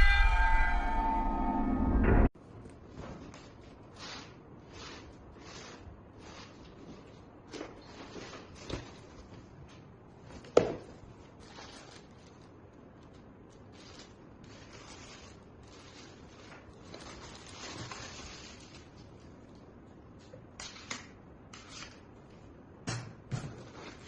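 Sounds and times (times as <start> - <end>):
rustling and handling noises: 2.4 - 22.7, 23.3 - 24.0.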